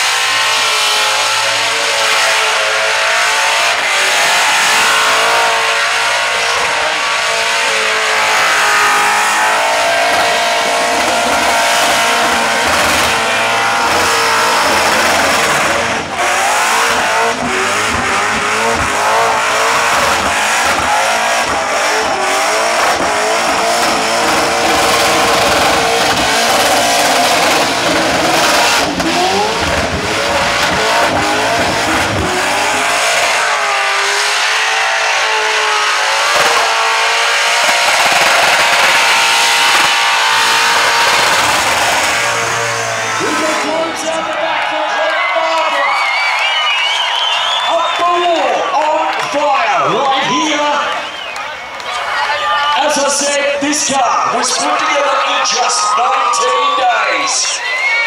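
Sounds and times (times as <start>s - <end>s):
car engine at high revs: 0.0s - 57.6s.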